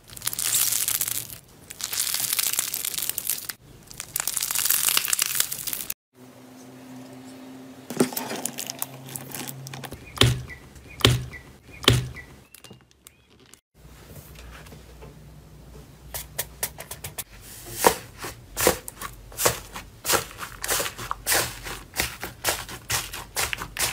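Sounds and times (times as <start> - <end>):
crunchy slime crackling: 0.0 - 6.0
slime popping: 0.1 - 5.9.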